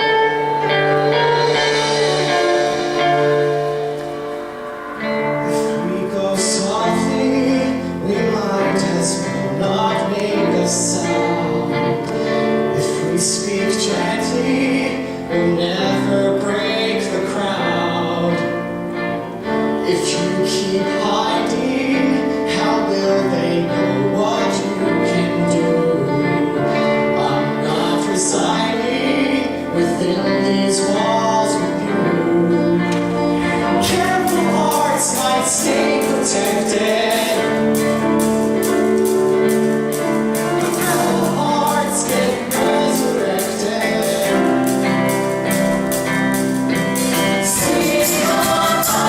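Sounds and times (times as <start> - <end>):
instrumental accompaniment: 0.0 - 49.0
vocal group singing: 19.9 - 49.0
steady percussion beat: 33.8 - 49.0.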